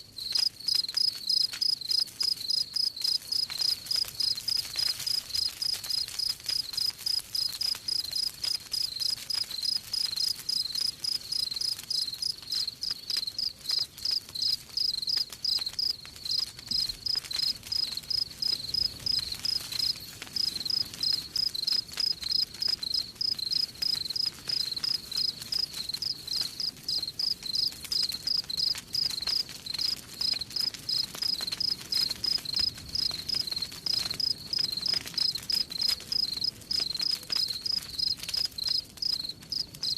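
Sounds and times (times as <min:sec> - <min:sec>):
campfire crackle: 0:00.0 - 0:39.9
crickets chirping: 0:00.2 - 0:04.5, 0:06.7 - 0:26.2, 0:27.0 - 0:28.7, 0:36.1 - 0:39.9.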